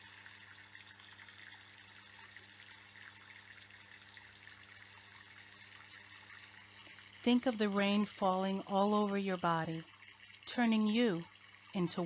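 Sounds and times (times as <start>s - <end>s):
faint low electrical hum: 0.0s - 12.0s
rain patter: 6.1s - 12.0s.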